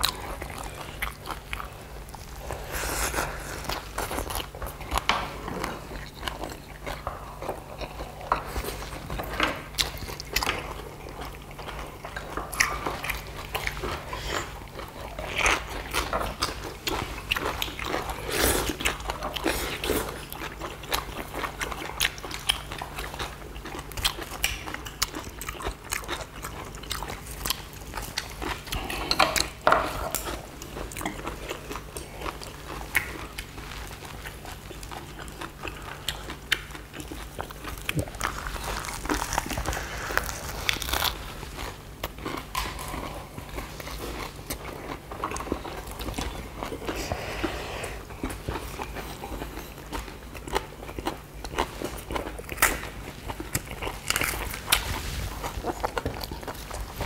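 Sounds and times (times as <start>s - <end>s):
people chewing crunchy leaves: 0.0s - 57.0s.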